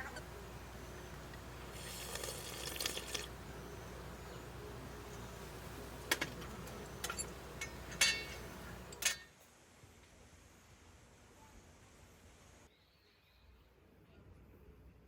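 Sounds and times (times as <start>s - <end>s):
tableware clinking on dishes: 6.1s - 9.3s.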